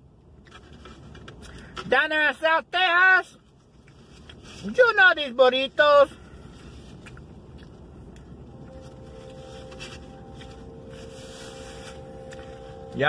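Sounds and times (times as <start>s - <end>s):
low steady rumble: 0.0s - 13.0s
person chewing food: 6.5s - 9.5s
faint steady tone: 7.9s - 13.0s.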